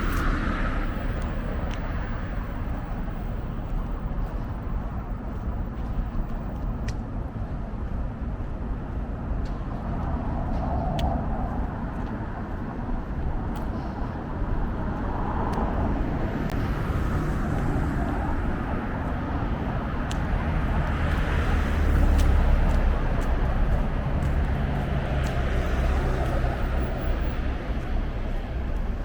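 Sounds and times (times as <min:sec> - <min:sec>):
car passing by: 0:00.0 - 0:03.4, 0:13.6 - 0:29.0
road traffic: 0:00.0 - 0:29.0.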